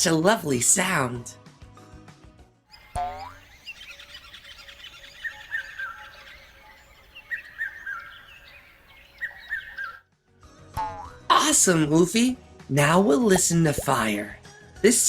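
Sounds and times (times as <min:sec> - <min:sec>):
birds chirping chorus: 0:02.7 - 0:10.1
bird repeating whistled phrase: 0:03.0 - 0:10.0.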